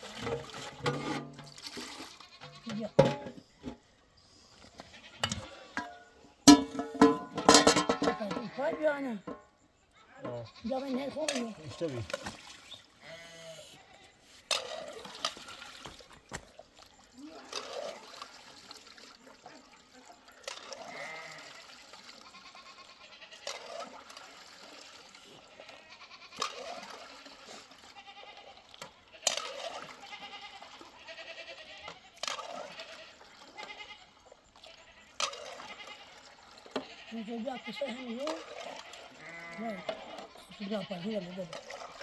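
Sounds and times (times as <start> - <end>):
livestock bleating: 1.9 - 3.2, 4.8 - 6.0, 10.0 - 11.5, 13.0 - 14.2, 20.8 - 23.6, 25.4 - 27.2, 27.8 - 41.9.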